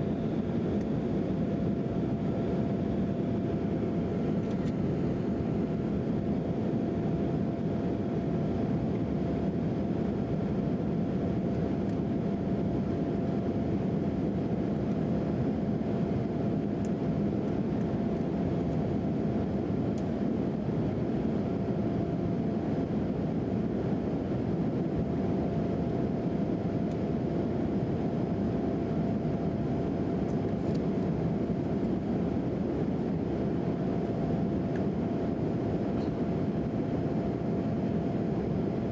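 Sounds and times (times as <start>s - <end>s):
jet engine and airflow rush: 0.0s - 38.9s.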